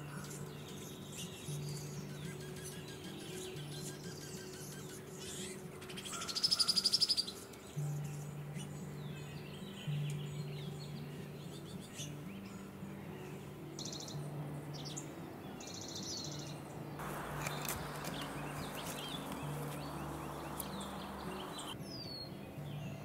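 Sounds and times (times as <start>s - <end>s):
soft background music: 0.0s - 23.0s
faint bird chirps: 15.7s - 22.3s
bird rattling calls: 17.0s - 21.8s.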